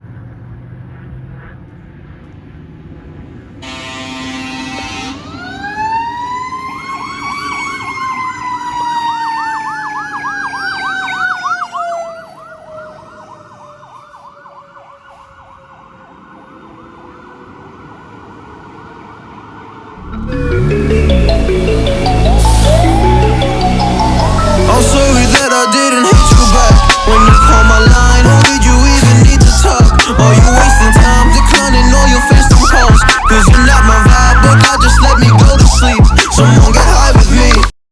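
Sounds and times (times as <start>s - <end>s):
fire engine horn blast: 3.6s - 5.7s, 20.0s - 34.0s
electronic yelp siren: 3.6s - 37.6s
mechanical siren wailing: 3.6s - 37.6s.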